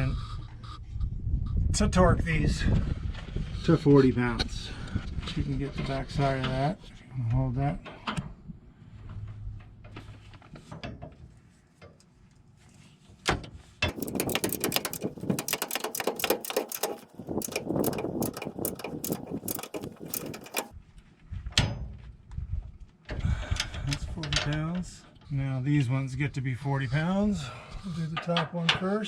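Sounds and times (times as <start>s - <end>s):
ratchet wrench clicking rapidly: 13.9s - 20.8s.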